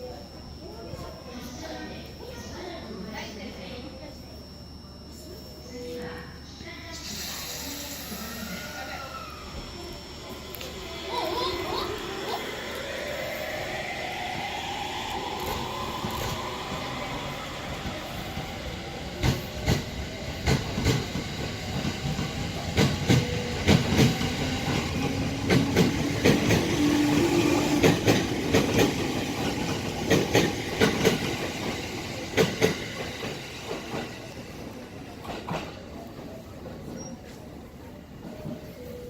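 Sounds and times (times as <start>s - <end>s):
train rolling hiss: 6.8s - 38.9s.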